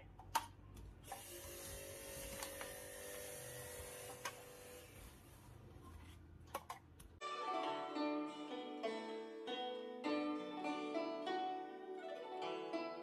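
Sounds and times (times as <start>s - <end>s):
plucked-string background music: 7.2s - 13.0s.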